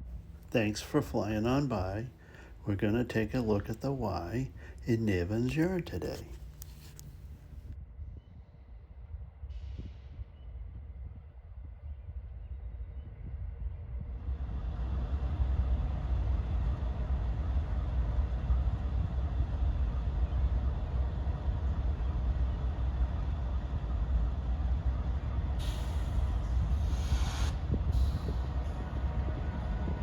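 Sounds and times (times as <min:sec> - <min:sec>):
train rumble approaching: 0:00.0 - 0:07.6, 0:13.9 - 0:30.0
air hissing: 0:25.6 - 0:28.8.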